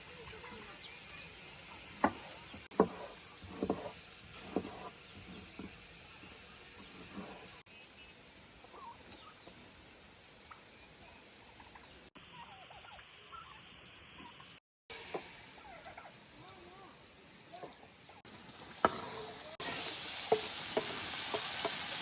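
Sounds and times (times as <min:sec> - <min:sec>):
turkey calling: 0:08.6 - 0:09.5, 0:10.5 - 0:14.6.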